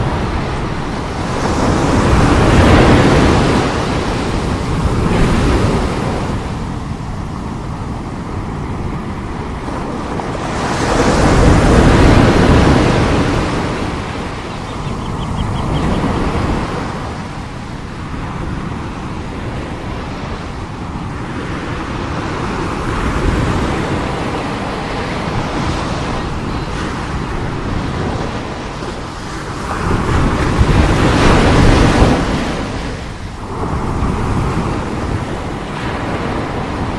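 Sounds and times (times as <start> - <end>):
sea waves crashing: 0.0 - 36.9.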